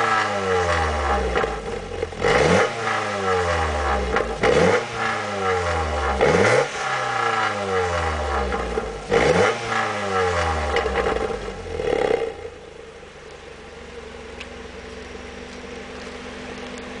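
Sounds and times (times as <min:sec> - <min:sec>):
car engine revving and idling: 0:00.0 - 0:17.0.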